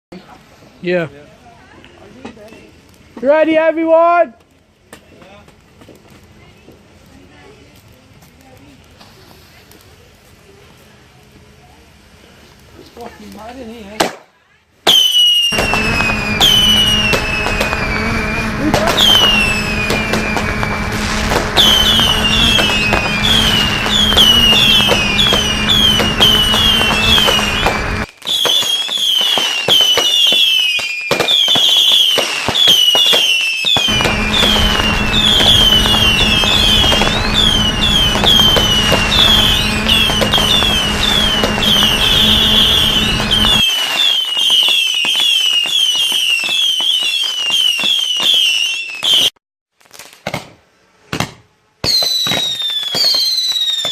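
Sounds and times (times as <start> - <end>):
fireworks whistling: 14.8 - 50.2, 51.8 - 53.9
steady low hum: 15.6 - 28.1, 33.9 - 43.6.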